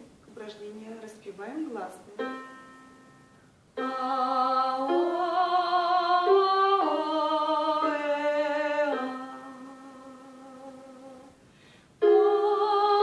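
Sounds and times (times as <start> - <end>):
woman singing vocal warm-up: 3.8 - 11.4, 12.0 - 13.0.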